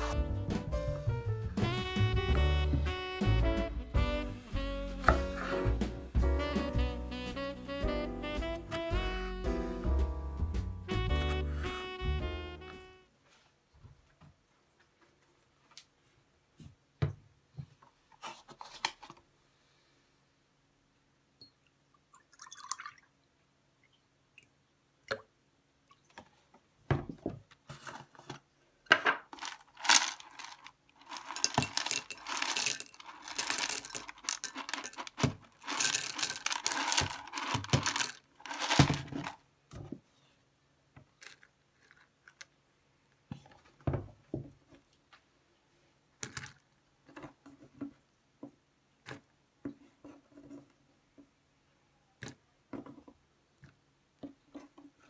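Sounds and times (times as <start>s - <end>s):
cereal rattling into a mug: 29.3s - 39.4s, 41.2s - 42.5s.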